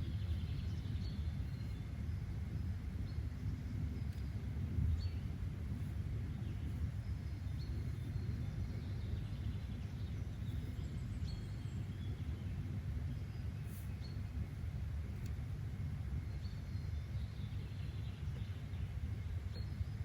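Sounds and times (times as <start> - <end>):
faint bird chirps: 0.0 - 15.4
steady low rumble: 0.0 - 20.0.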